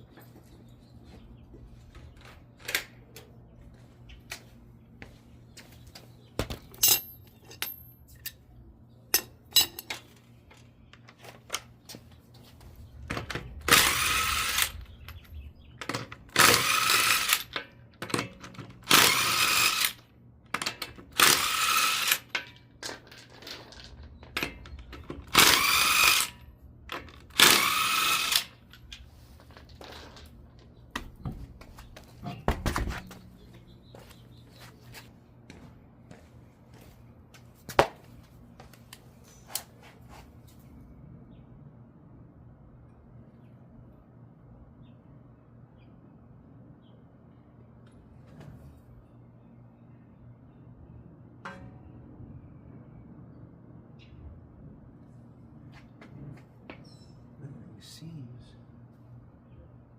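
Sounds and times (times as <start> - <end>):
metallic clinks of tools: 6.7 - 8.4
impact wrench bursts: 13.6 - 15.3, 15.9 - 17.6, 18.8 - 20.1, 21.1 - 22.3, 25.2 - 26.4, 27.2 - 28.7.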